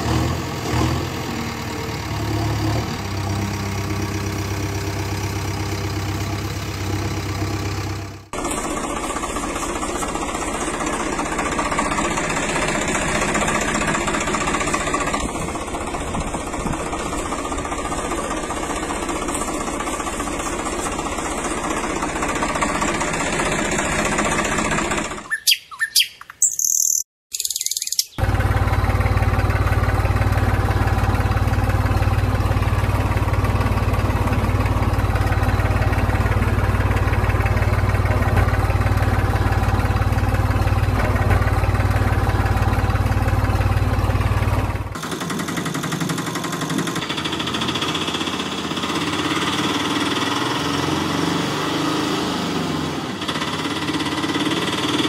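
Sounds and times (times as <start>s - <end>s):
engine idling: 0.0s - 25.3s, 28.1s - 55.0s
birds chirping: 25.3s - 28.2s.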